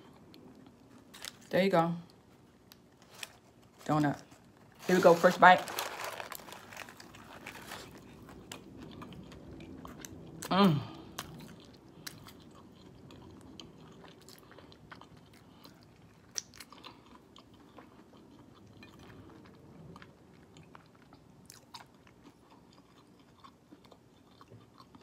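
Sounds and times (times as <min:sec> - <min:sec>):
person chewing food: 0:05.8 - 0:25.0.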